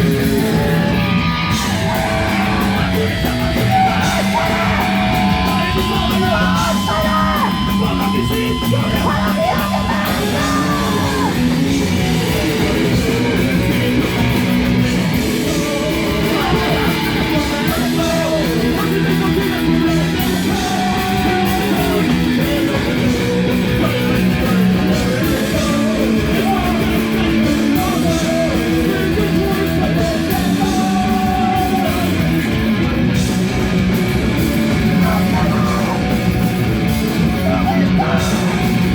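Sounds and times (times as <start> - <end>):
electric guitar: 0.0 - 38.9
live rock band: 0.0 - 38.9
person yelling vocals: 0.2 - 13.9, 15.5 - 32.3, 34.8 - 36.3, 37.2 - 38.9.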